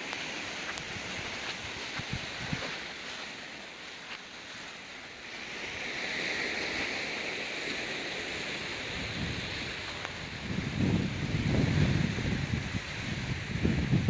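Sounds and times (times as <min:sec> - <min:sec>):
wind buffeting microphone: 0:00.0 - 0:03.0, 0:08.4 - 0:14.0
surf washing against rocks: 0:00.0 - 0:14.0.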